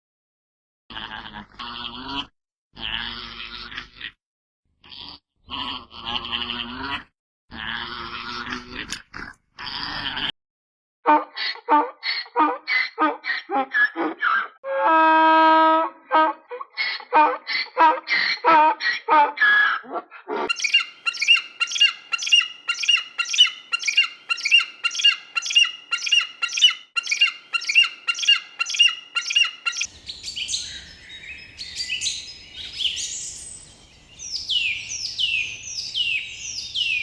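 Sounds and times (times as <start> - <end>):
bird calling quick notes: 20.5 - 37.0
bird falling chirps: 20.5 - 37.0
faint outdoor background noise: 20.5 - 37.0
rapid low animal calls: 20.5 - 37.0.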